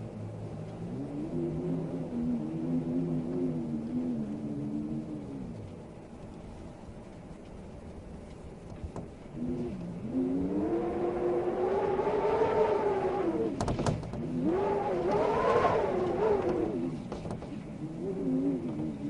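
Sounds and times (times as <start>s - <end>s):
vehicle engine revving: 9.4s - 17.0s.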